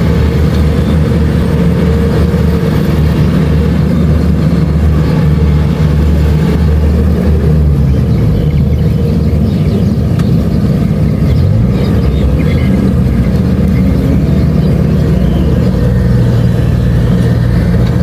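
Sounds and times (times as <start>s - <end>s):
diesel engine hum: 0.0s - 18.0s
threshing machinery noise: 0.0s - 18.0s.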